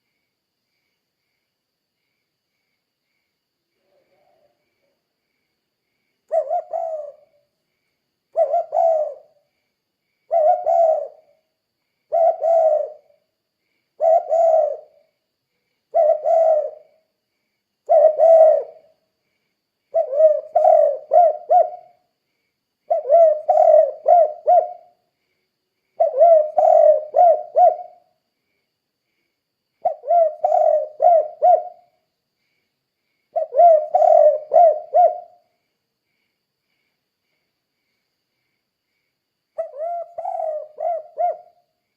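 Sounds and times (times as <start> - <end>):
dove cooing: 6.3 - 7.4, 8.3 - 9.4, 10.3 - 11.4, 12.1 - 13.2, 14.0 - 15.1, 15.9 - 17.1, 17.8 - 18.9, 19.9 - 22.1, 22.9 - 25.0, 26.0 - 28.1, 29.8 - 32.0, 33.3 - 35.4, 39.6 - 41.6.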